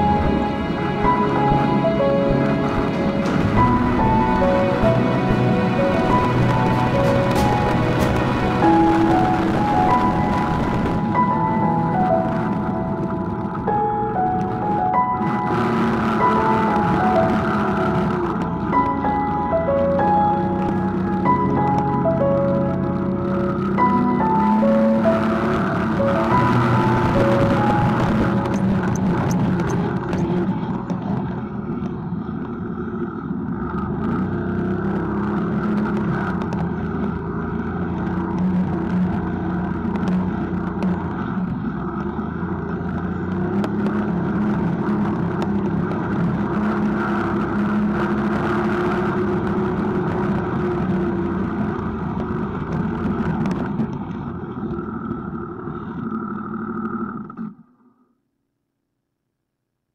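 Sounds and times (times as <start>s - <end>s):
snowmobile engine running: 0.0s - 57.6s.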